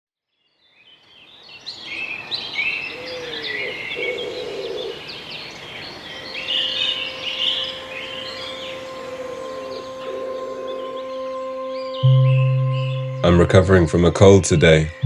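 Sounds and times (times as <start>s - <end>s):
birds chirping: 0.5s - 15.0s
steady held tone: 6.3s - 15.0s.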